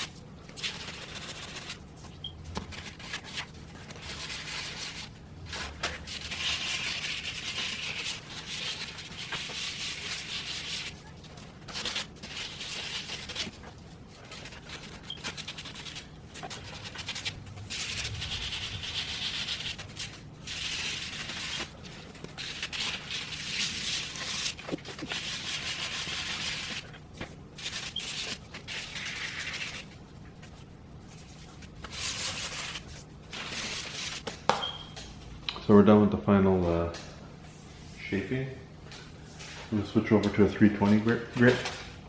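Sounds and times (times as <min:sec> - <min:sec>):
sandpaper rasping by hand: 0:16.8 - 0:21.7.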